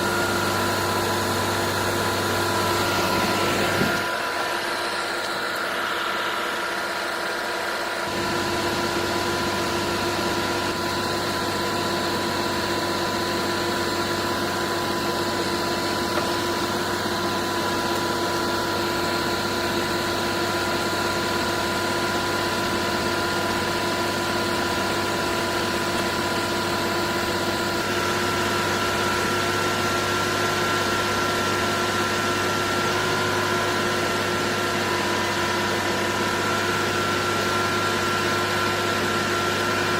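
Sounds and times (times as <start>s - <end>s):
truck engine drone: 0.0s - 39.9s.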